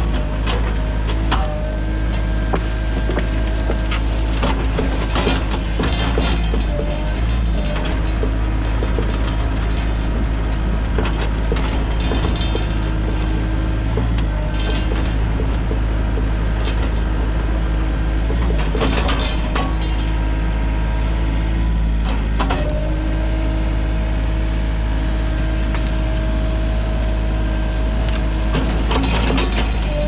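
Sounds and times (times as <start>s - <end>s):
steady high whine: 0.0s - 6.7s
excavator diesel engine running: 0.0s - 30.0s
sharp knocks and cracks: 8.1s - 9.9s.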